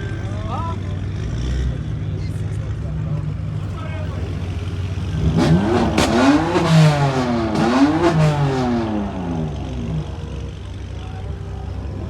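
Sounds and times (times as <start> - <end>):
car engine revving hard: 5.0 - 10.4.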